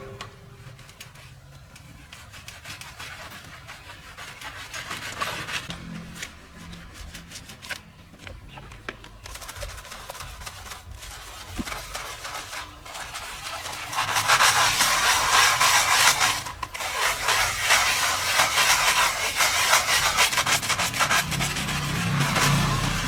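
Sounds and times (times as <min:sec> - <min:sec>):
stiff brush scrubbing: 0:00.0 - 0:08.4, 0:09.0 - 0:23.0.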